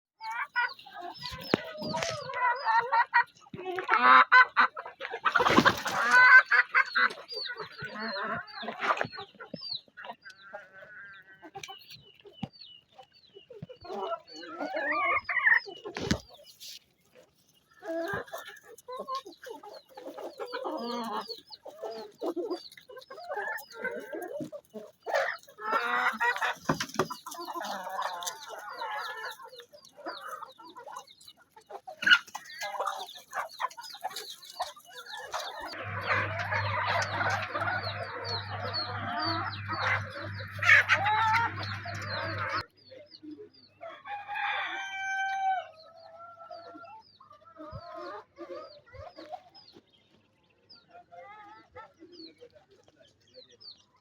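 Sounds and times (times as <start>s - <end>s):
hens clucking: 0.2s - 43.4s, 44.1s - 50.1s
small birds chirping: 0.2s - 44.0s, 45.7s - 54.0s
rooster crowing: 35.8s - 42.6s, 43.9s - 45.8s.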